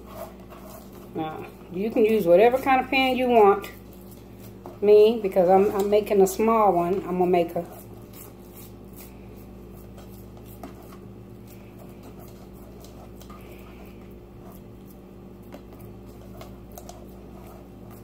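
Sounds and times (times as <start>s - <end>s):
hands patting meat mixture: 0.0s - 18.0s
steady low hum: 0.0s - 18.0s.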